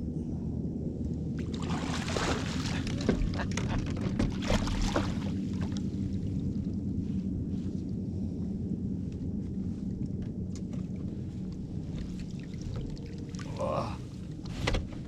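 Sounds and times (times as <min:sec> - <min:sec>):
low rumble: 0:00.0 - 0:15.0
water splashing and dripping: 0:01.4 - 0:05.8, 0:12.0 - 0:13.6.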